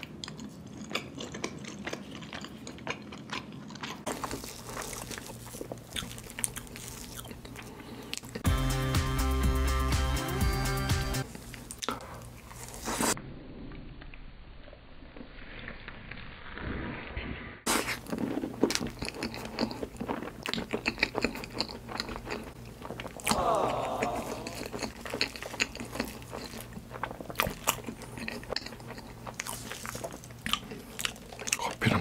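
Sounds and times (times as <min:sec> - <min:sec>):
wet chewing and mouth clicks: 0:00.0 - 0:08.4, 0:17.8 - 0:32.0.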